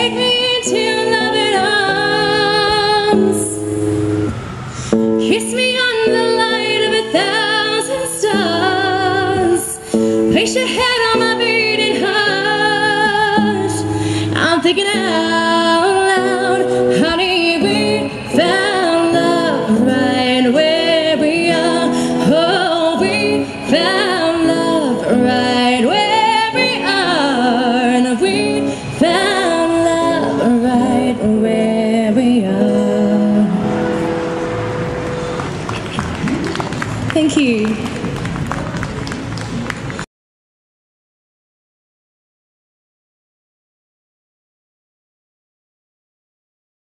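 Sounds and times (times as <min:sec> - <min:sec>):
woman singing a slow ballad: 0:00.0 - 0:03.6, 0:04.9 - 0:33.8
strummed acoustic guitar: 0:00.0 - 0:36.8.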